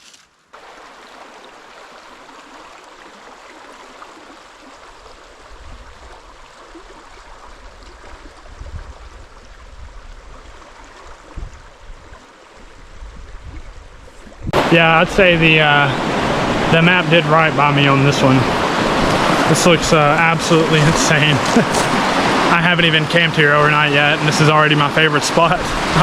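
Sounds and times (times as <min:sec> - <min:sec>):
creek water rushing: 0:00.6 - 0:26.0
wind on microphone: 0:05.4 - 0:16.8, 0:18.3 - 0:19.9, 0:25.6 - 0:26.0.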